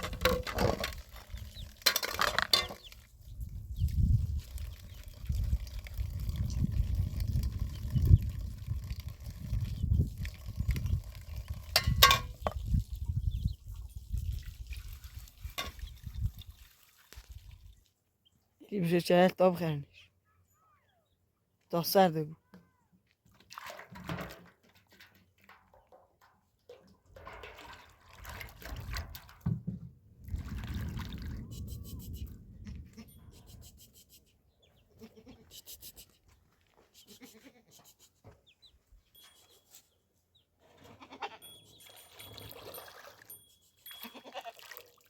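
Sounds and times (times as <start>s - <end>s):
goats bleating: 34.9s - 35.6s, 37.0s - 37.8s, 40.9s - 41.5s, 43.9s - 44.6s.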